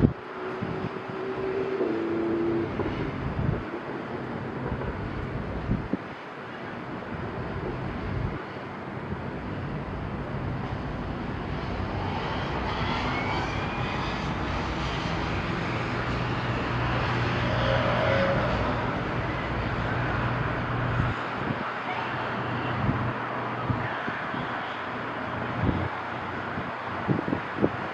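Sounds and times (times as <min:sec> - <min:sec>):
distant engine rumble: 0:00.0 - 0:06.1, 0:09.2 - 0:21.6.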